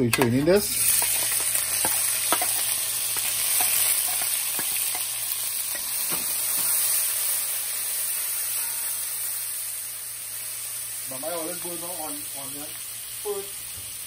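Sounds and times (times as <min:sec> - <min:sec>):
onion sizzling in hot oil: 0:00.0 - 0:14.0.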